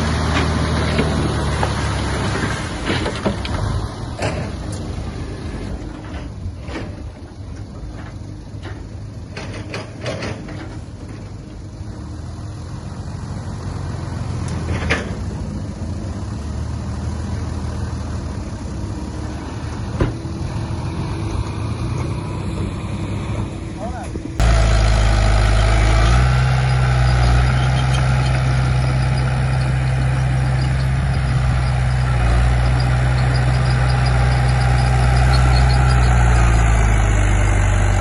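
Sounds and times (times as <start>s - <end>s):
diesel earthmoving machinery running: 0.0s - 38.0s.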